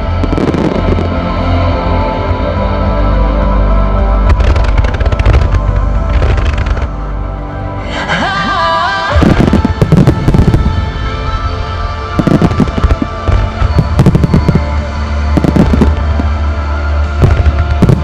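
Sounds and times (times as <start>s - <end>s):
music playing: 0.0s - 18.0s
fireworks bursting: 8.2s - 16.4s, 17.2s - 18.0s.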